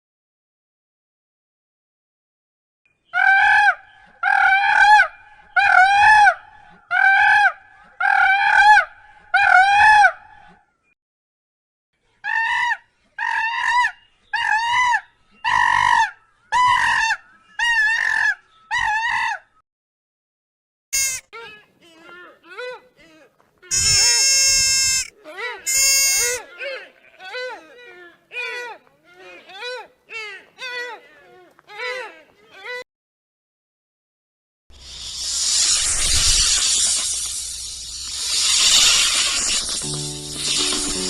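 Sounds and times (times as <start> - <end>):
fowl calling loudly: 3.1 - 10.4, 21.0 - 21.2, 23.7 - 26.4.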